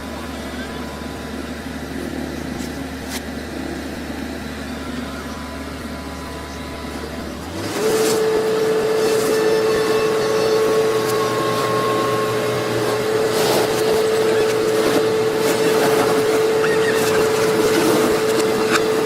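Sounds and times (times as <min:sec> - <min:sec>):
heavy machine engine humming: 0:00.0 - 0:19.0
high whine over hiss: 0:00.0 - 0:19.0.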